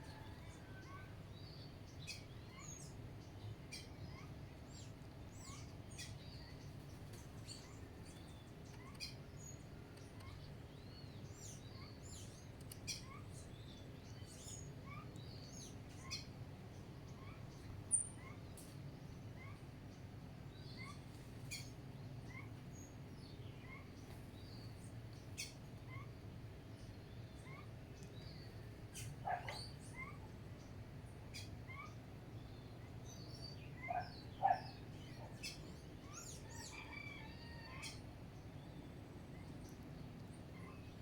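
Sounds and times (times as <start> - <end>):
bird chirping: 26.8 - 39.8
birds chattering: 27.2 - 30.3, 33.0 - 37.1.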